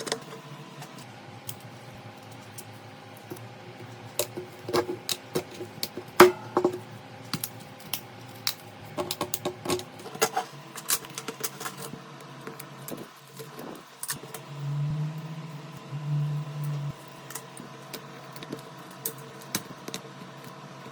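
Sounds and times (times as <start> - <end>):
low steady buzz: 13.6 - 18.4.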